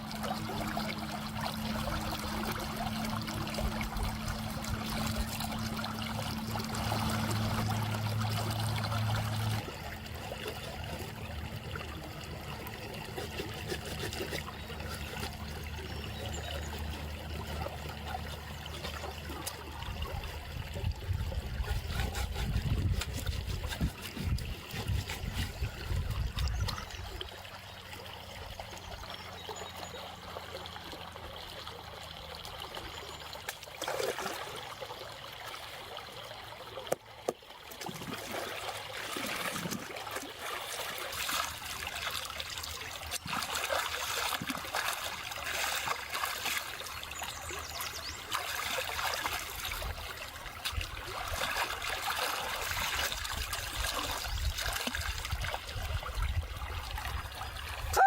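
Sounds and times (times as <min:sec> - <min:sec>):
water trickling: 0:00.0 - 0:58.0.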